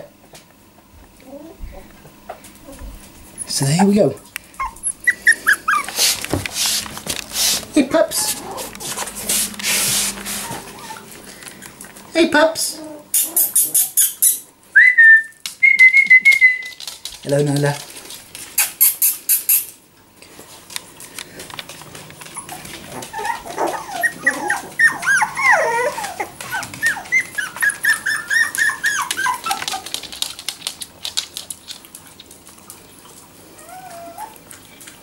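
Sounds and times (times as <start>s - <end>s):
puppies whining and squeaking: 2.6s - 11.9s, 12.6s - 14.5s, 18.6s - 19.8s, 22.2s - 30.2s, 33.5s - 34.7s.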